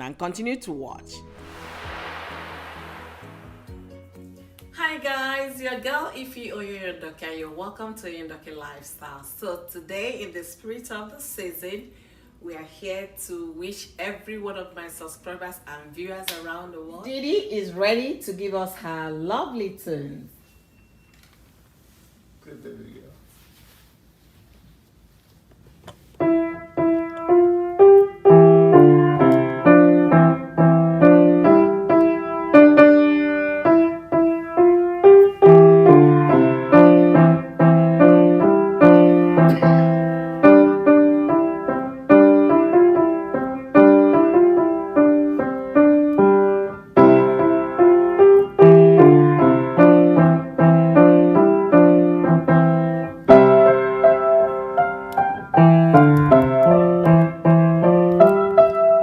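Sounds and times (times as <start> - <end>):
piano keyboard melody: 26.3 - 32.7, 33.4 - 59.0.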